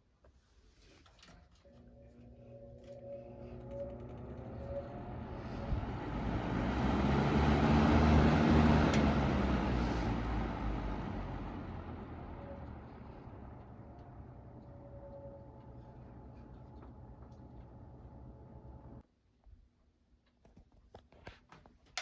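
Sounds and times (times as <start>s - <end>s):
road vehicle passing by: 3.3s - 19.0s.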